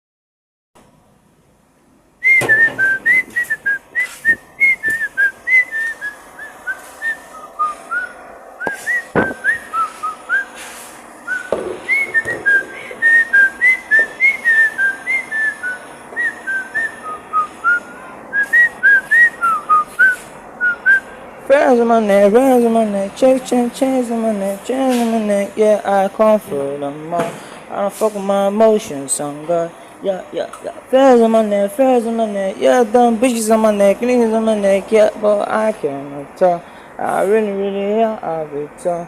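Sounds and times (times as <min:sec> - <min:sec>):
person whistling a tune: 0:02.2 - 0:10.6, 0:11.3 - 0:21.1.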